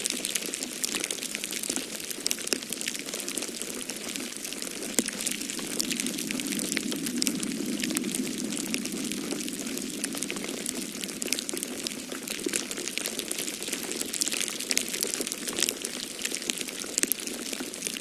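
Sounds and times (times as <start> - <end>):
wood fire crackling: 0.0 - 18.0
storm wind rushing: 4.2 - 14.4.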